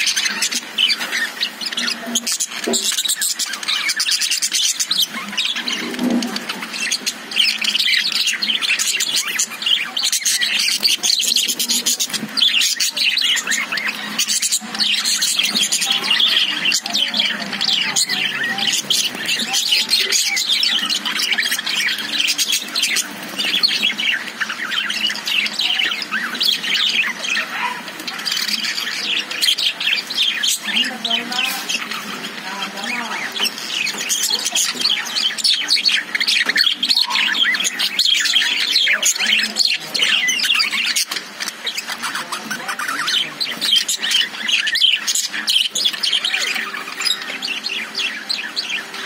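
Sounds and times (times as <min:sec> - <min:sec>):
budgerigars chirping and chattering: 0:00.0 - 0:49.0.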